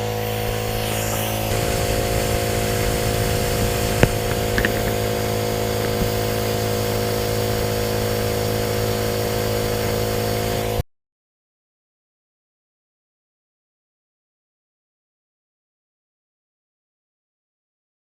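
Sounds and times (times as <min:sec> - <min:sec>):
air compressor humming: 0:00.0 - 0:10.8.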